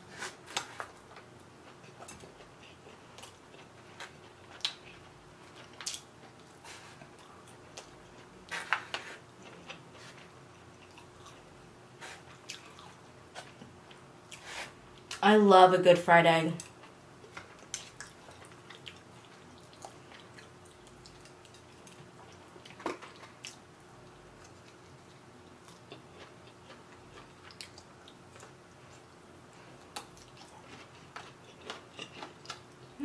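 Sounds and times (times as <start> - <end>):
chewing and mouth noises: 1.6 - 11.5, 12.1 - 14.4, 16.6 - 23.7, 24.4 - 33.0.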